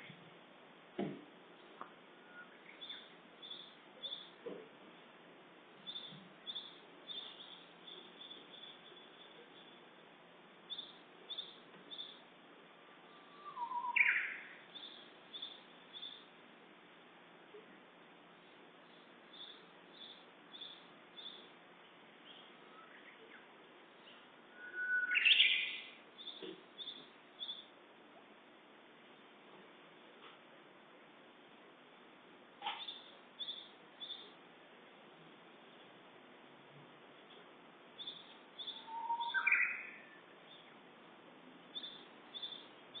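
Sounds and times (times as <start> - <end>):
background hiss: 0.0 - 43.0
warbler whistling song: 2.2 - 4.4, 5.8 - 9.9, 10.7 - 12.2, 13.0 - 16.3, 18.8 - 21.5, 22.2 - 27.7, 32.8 - 34.4, 38.0 - 40.7, 41.7 - 43.0.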